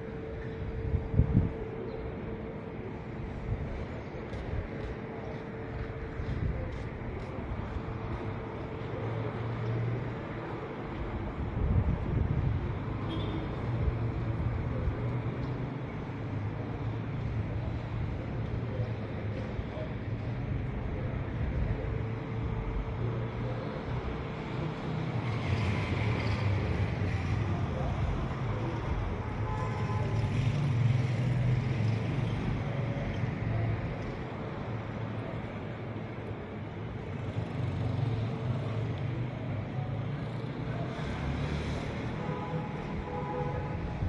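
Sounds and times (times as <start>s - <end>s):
wind noise on microphone: 0.6s - 1.7s, 11.1s - 14.7s.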